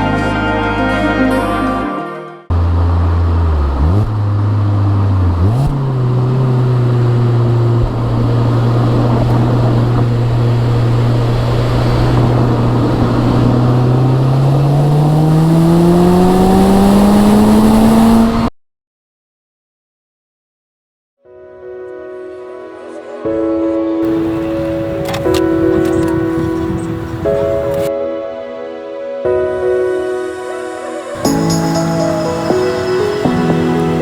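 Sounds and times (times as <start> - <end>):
car engine accelerating: 2.4 - 18.5, 24.0 - 27.9, 31.2 - 34.0.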